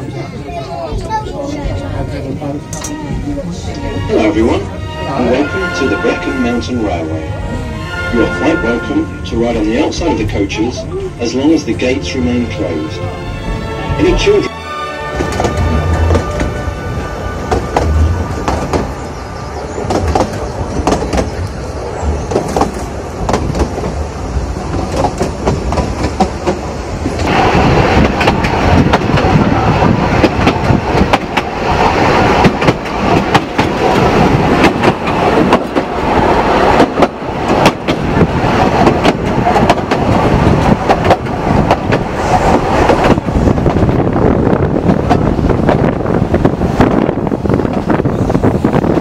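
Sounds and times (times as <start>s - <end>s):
train carriage rumbling on track: 0.0s - 49.0s
wheels clattering on rails: 19.7s - 49.0s.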